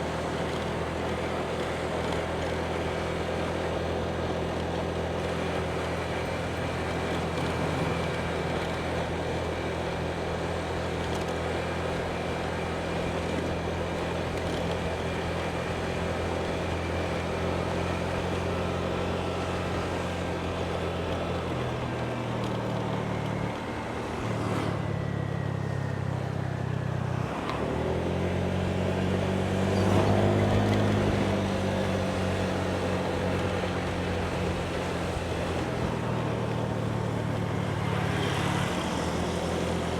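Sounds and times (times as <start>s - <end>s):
motorbike engine running: 0.0s - 39.9s
road and wind noise: 0.0s - 39.9s.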